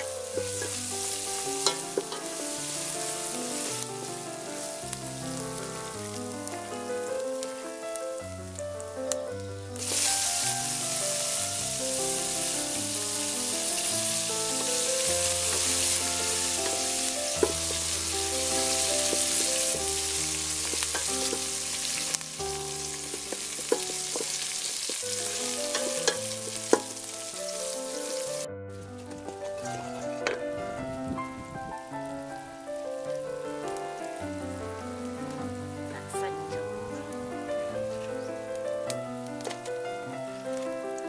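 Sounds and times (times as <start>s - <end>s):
background music: 0.0s - 41.0s
food sizzling in hot oil: 0.0s - 41.0s
wooden spoon knocking pot: 16.6s - 17.9s, 23.0s - 27.0s.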